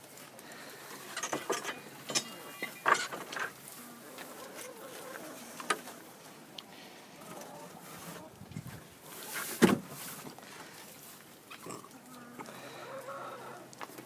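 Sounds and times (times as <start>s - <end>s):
farm animals calling: 0.4s - 8.4s, 11.0s - 14.0s.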